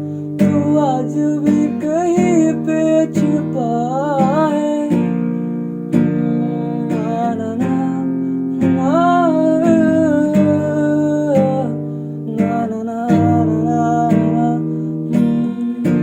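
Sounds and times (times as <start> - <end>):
acoustic guitar strumming: 0.0 - 16.0
person humming a melody: 6.4 - 16.0.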